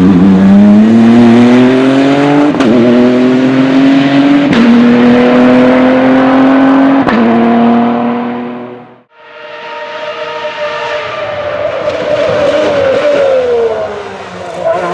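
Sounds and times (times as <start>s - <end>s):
race car engine accelerating: 0.0s - 14.9s.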